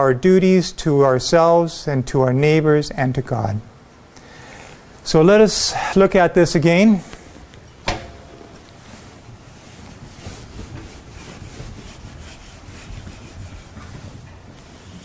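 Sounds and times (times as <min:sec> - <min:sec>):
room noise: 0:00.0 - 0:15.0
faint rustles: 0:07.0 - 0:15.0
short knock: 0:07.9 - 0:08.5.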